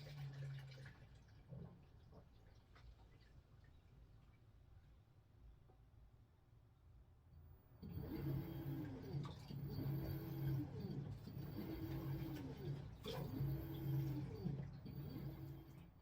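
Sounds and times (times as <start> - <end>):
washing machine motor whirring: 7.8 - 16.0.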